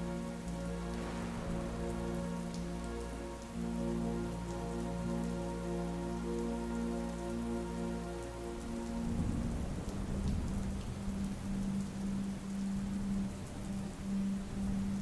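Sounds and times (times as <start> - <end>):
ambient music chord: 0.0 - 15.0
rain drop ticks: 0.0 - 15.0
rain hissing: 0.0 - 15.0
deep rumble: 0.8 - 3.2.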